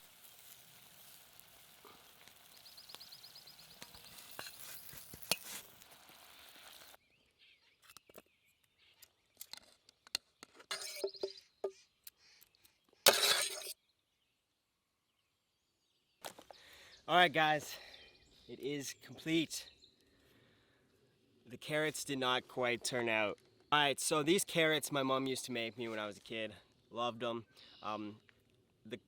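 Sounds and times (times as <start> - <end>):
food sizzling over campfire: 0.0 - 7.0
cookware and utensils clinking: 10.7 - 11.4
scraping: 13.1 - 13.7.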